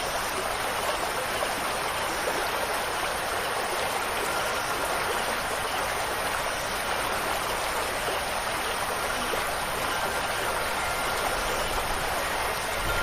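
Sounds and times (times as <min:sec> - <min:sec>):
running water hiss: 0:00.0 - 0:13.0.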